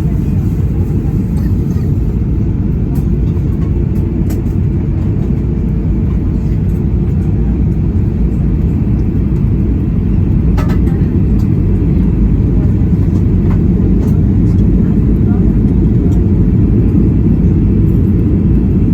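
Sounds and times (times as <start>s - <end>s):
airplane cabin roar: 0.0s - 18.9s
faint clatter: 10.5s - 16.2s.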